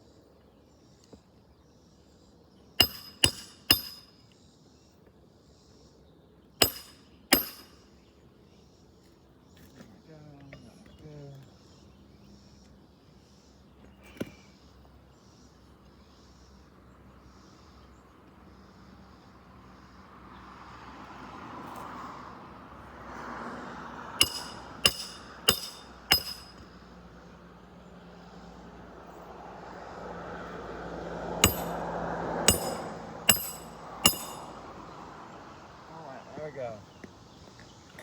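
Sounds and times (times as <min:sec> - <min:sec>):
hammer striking roofing nails: 0:02.8 - 0:04.1, 0:06.6 - 0:07.8, 0:24.2 - 0:26.6, 0:31.4 - 0:31.8, 0:32.5 - 0:34.5.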